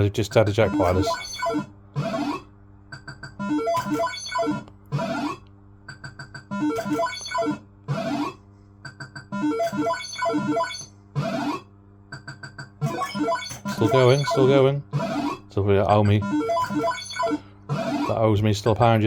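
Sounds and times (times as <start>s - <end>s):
beeping electronic jingle: 6.6s - 7.6s, 16.0s - 18.2s.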